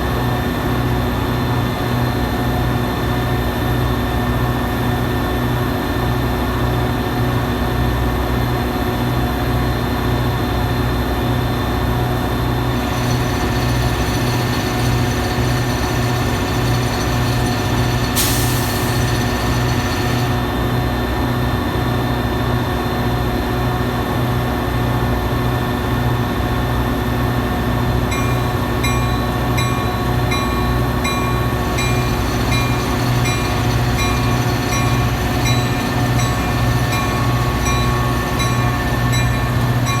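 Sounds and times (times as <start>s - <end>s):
diesel train engine drone: 0.0s - 40.0s
hiss: 17.9s - 20.4s.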